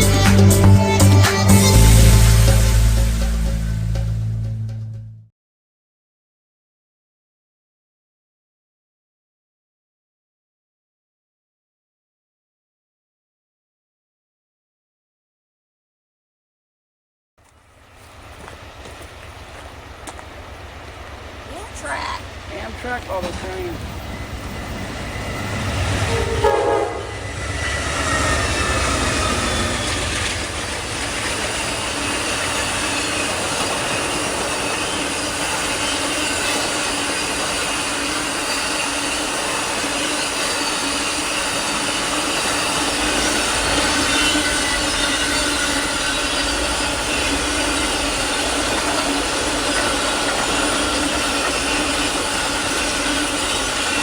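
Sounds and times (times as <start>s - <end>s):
train cars rumbling and clattering: 17.4s - 54.0s
wheel squeal: 17.8s - 54.0s
train horn: 21.5s - 37.8s.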